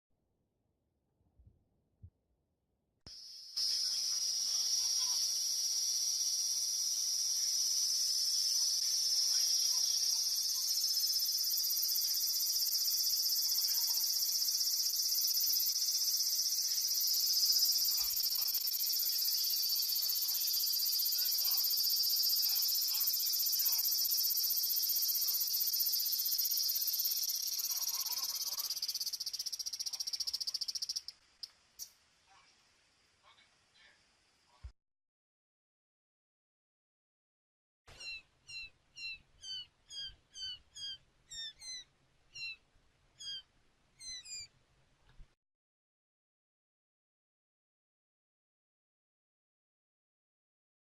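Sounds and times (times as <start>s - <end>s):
cicada buzzing: 3.2s - 31.1s.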